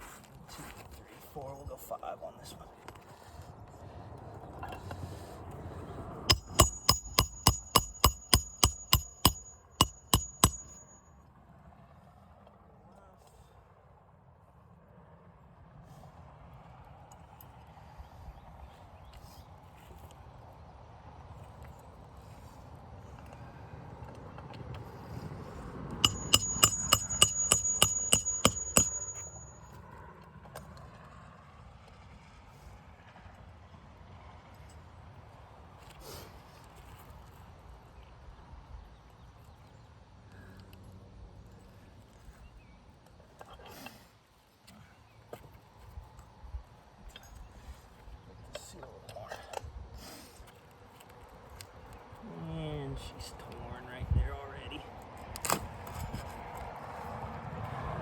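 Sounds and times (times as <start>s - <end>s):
hammer driving nails into shingle: 6.3s - 10.9s, 26.0s - 29.6s.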